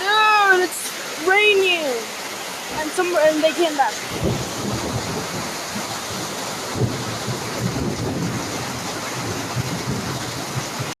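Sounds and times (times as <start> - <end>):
heavy rain hissing: 0.0 - 11.0
wind gusts buffeting microphone: 2.6 - 11.0.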